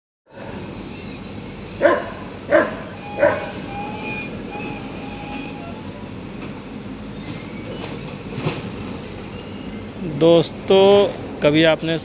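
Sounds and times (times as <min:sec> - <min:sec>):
train wagons rumbling: 0:00.3 - 0:12.0
faint wheel squeal: 0:00.4 - 0:01.9, 0:02.5 - 0:10.1.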